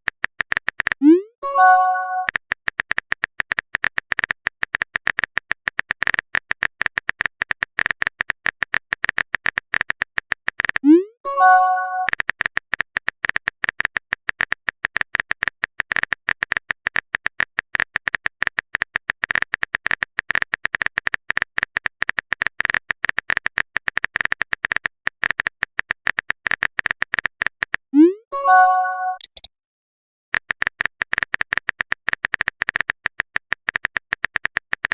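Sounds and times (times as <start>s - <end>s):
phone keyboard typing clicks: 0.0s - 27.9s, 28.5s - 29.5s, 30.4s - 34.9s
message notification chime: 1.4s - 2.3s, 11.3s - 12.1s, 28.0s - 29.4s.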